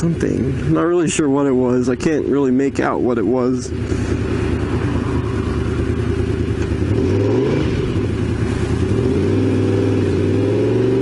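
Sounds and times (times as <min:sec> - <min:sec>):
motorcycle engine revving: 0:03.5 - 0:11.0.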